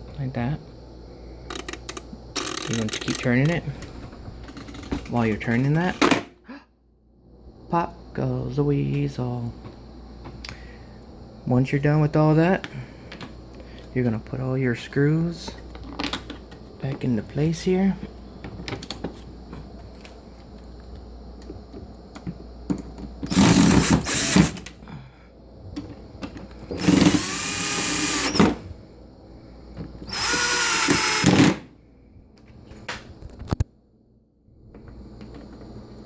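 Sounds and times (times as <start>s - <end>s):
power drill driving screws: 23.3s - 24.6s, 26.7s - 28.6s, 30.0s - 31.6s.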